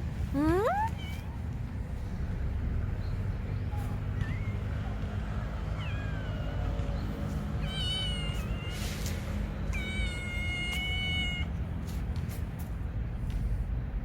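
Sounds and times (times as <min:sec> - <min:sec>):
cat meowing: 0:00.4 - 0:01.2, 0:07.6 - 0:08.9, 0:09.7 - 0:11.5.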